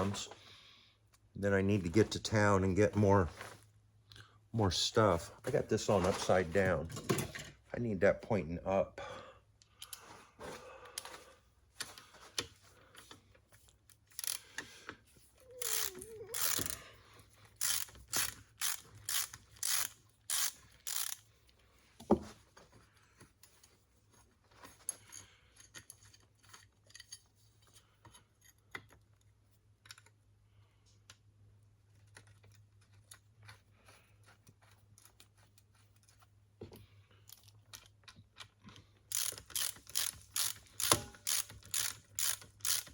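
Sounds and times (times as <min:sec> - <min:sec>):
tools and metal parts clinking: 0:06.0 - 0:07.6, 0:15.6 - 0:21.2, 0:24.6 - 0:30.2, 0:37.2 - 0:42.9
ratchet wrench clicking: 0:14.1 - 0:14.5, 0:15.6 - 0:16.8, 0:17.5 - 0:21.2, 0:39.1 - 0:42.9.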